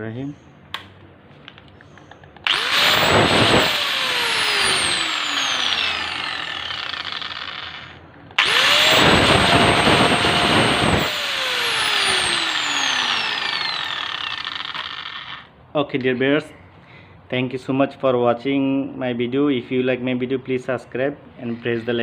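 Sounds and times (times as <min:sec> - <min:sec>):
power tool motor spinning up: 0:02.4 - 0:15.5.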